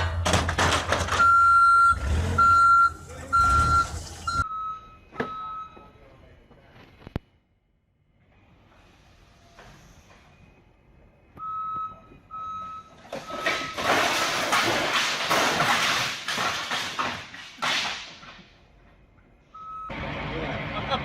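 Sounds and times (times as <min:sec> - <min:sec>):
loud crash with cracks and scraping: 0:00.0 - 0:01.4, 0:13.0 - 0:18.6
vehicle reversing alarm beeps: 0:01.1 - 0:06.5, 0:08.3 - 0:13.9, 0:19.4 - 0:20.1.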